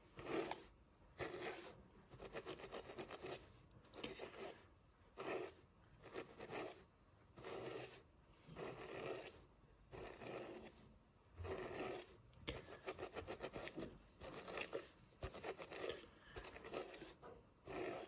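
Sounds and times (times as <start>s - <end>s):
hairbrush bristles scraping hair: 0.2s - 3.4s, 12.8s - 18.0s.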